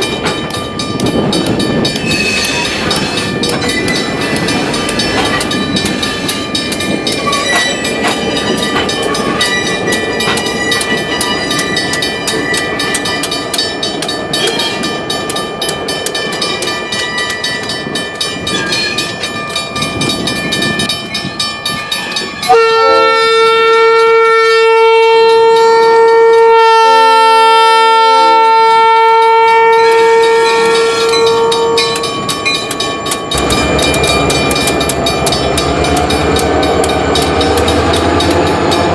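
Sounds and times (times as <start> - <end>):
train rumbling on rails: 0.0 - 38.9
locomotive horn blast: 22.5 - 32.2.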